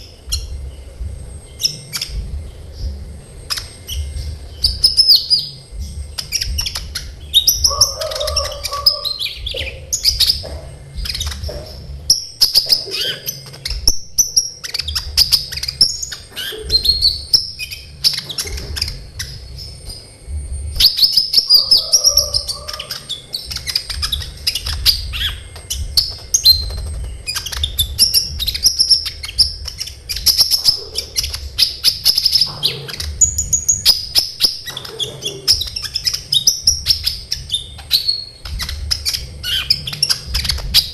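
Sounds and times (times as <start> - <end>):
bird singing chirps and trills: 0.0 - 40.9.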